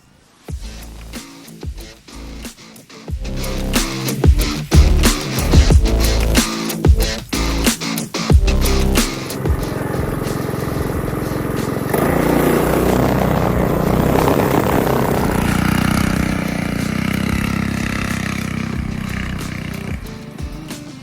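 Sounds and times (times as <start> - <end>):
mini bike engine revving: 8.5 - 20.3.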